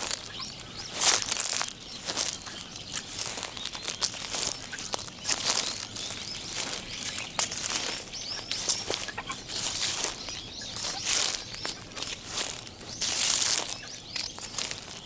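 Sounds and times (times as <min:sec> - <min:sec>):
bird chirps: 0:00.0 - 0:15.0
footsteps crunching dry leaves: 0:00.0 - 0:15.0.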